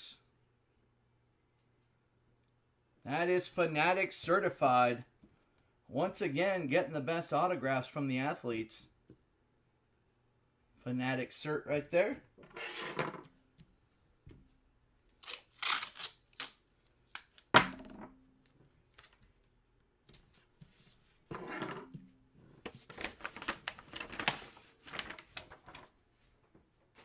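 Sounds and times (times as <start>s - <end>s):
packaging rustling: 22.7s - 26.0s.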